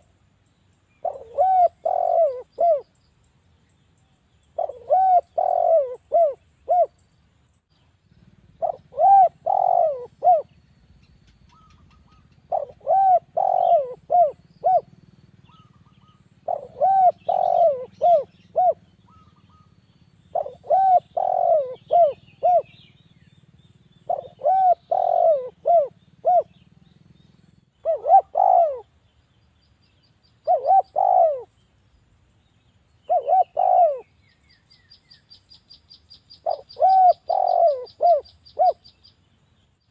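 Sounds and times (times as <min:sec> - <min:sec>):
dove cooing: 0:01.0 - 0:02.9, 0:04.6 - 0:07.0, 0:08.2 - 0:10.6, 0:11.3 - 0:23.0, 0:24.0 - 0:26.6, 0:27.8 - 0:29.0, 0:30.4 - 0:31.5, 0:33.1 - 0:34.2, 0:36.4 - 0:39.0.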